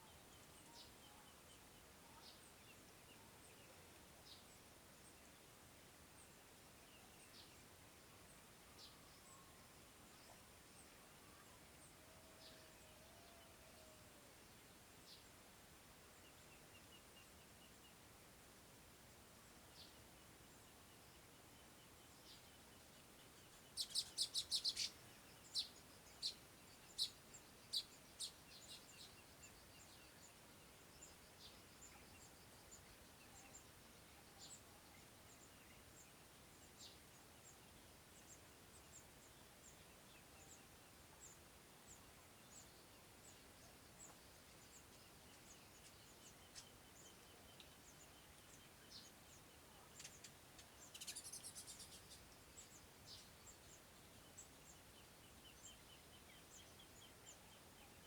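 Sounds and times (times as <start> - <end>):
small bird chirping: 23.2 - 30.4, 38.3 - 58.0.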